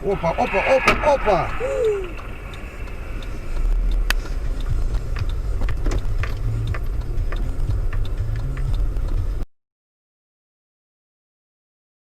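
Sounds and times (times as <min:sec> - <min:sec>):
sharp crack: 0:00.0 - 0:04.4
clicks and ticks: 0:00.0 - 0:09.4
motor vehicle rumble: 0:00.0 - 0:09.5.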